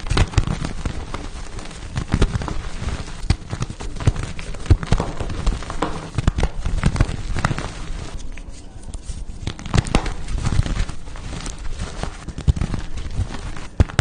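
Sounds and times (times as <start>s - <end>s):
chalk blocks being crushed: 9.4s - 14.0s.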